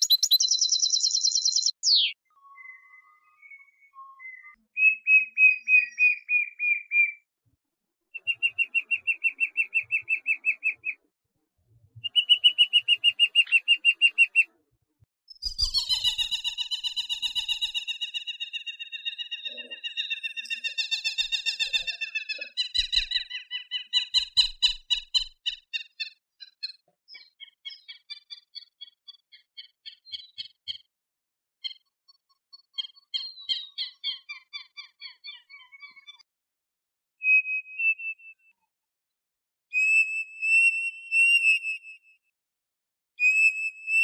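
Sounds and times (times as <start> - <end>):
bird chips: 0.0 - 2.1
bird trilling: 0.0 - 3.6, 12.0 - 14.5, 15.4 - 28.3.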